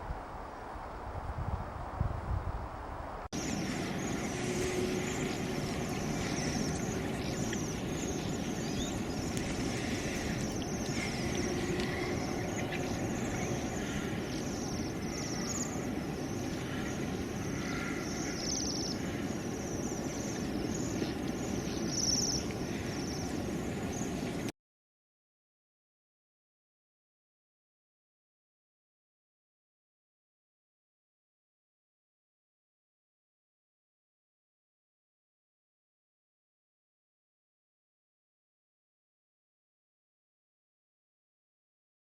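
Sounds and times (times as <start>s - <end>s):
low background rumble: 1.2s - 24.5s.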